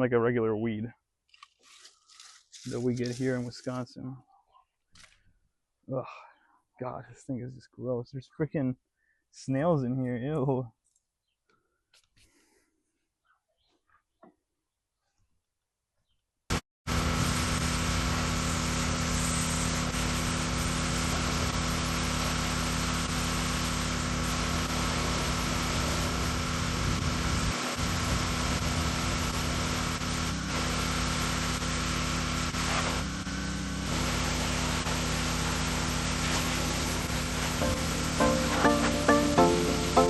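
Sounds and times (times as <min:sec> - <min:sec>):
pressure washer engine drone: 0:16.9 - 0:40.0
water spray hissing: 0:17.2 - 0:31.8, 0:32.5 - 0:40.0.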